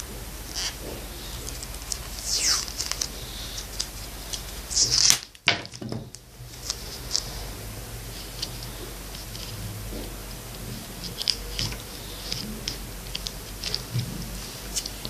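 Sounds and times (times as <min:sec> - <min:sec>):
low electrical hum: 0:00.0 - 0:15.0
scraping swishes: 0:00.8 - 0:05.1.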